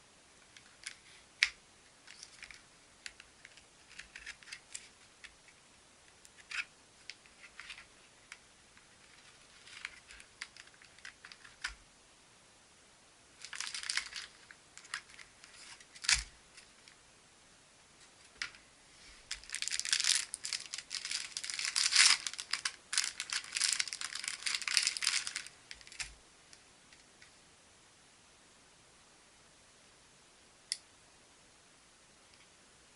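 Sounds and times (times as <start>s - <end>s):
packaging crinkling and tearing: 13.4s - 16.3s, 19.3s - 26.1s.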